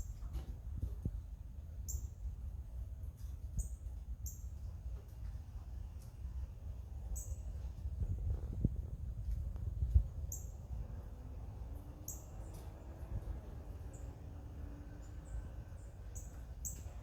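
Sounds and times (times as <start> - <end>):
steady low rumble: 0.0 - 17.0
small birds chirping: 1.8 - 2.3, 3.2 - 4.6, 7.0 - 7.6, 9.9 - 10.7, 11.6 - 17.0.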